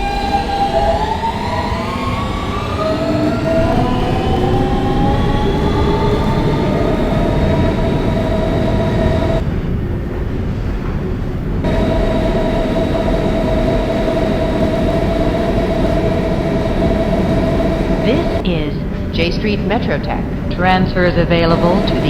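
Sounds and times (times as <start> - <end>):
traction motors whining: 0.0 - 9.4, 11.6 - 18.5, 21.4 - 22.0
train wheels rumbling on rails: 0.0 - 22.0.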